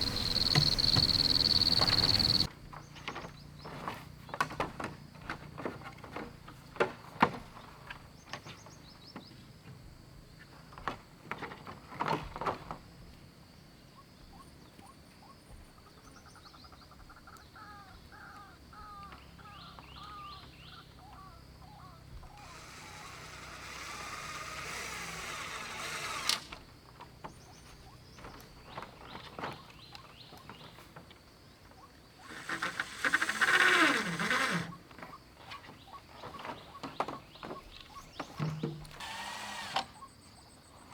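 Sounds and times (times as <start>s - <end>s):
high insect drone: 0.0s - 2.5s, 21.1s - 27.0s, 32.1s - 35.0s
scattered knocks: 0.0s - 2.5s
short repeated animal chirps: 0.0s - 2.5s.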